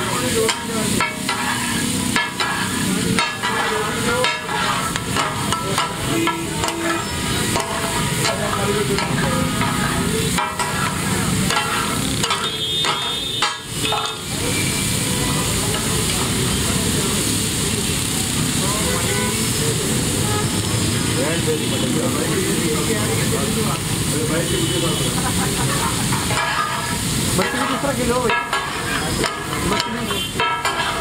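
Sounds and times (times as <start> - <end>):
metal spatulas scraping griddle: 0.0 - 14.6, 25.6 - 31.0
meat sizzling on a griddle: 0.0 - 31.0.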